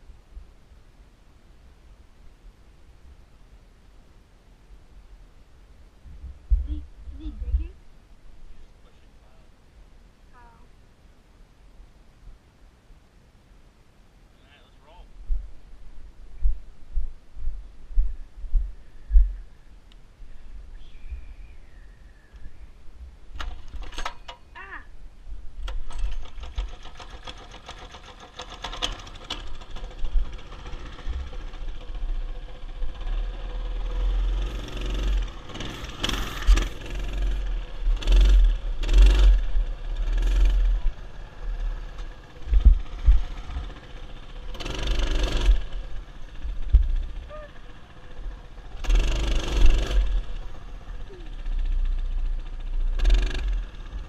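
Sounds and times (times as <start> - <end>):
small bike engine running: 25.9 - 54.0.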